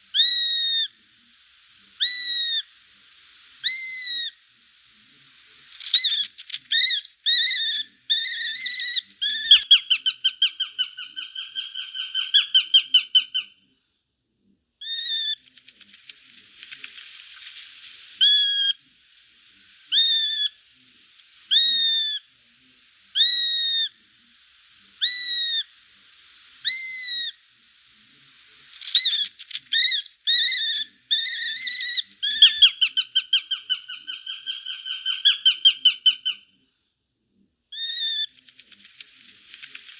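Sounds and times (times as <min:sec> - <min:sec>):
shrill bird calls: 0:00.1 - 0:00.9, 0:02.0 - 0:02.7, 0:03.6 - 0:04.4, 0:05.8 - 0:13.6, 0:14.8 - 0:15.4, 0:18.2 - 0:18.8, 0:19.9 - 0:20.6, 0:21.5 - 0:22.3, 0:23.2 - 0:24.0, 0:25.0 - 0:25.7, 0:26.6 - 0:27.4, 0:28.9 - 0:36.5, 0:37.7 - 0:38.4.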